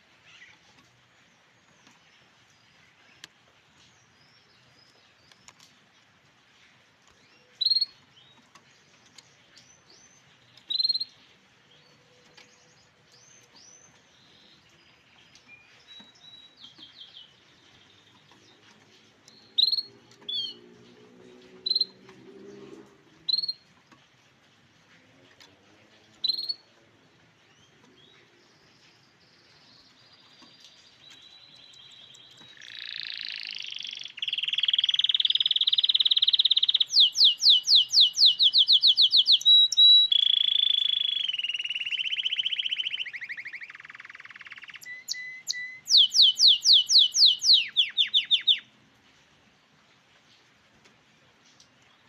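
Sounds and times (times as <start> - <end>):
canary chirping: 7.2 - 22.1, 23.2 - 23.7, 26.2 - 26.7, 27.4 - 48.7.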